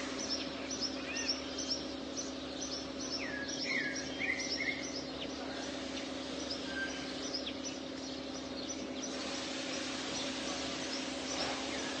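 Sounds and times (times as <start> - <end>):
sparrows chirping: 0.0 - 12.0
steady low hum: 0.0 - 12.0
background hiss: 9.1 - 12.0.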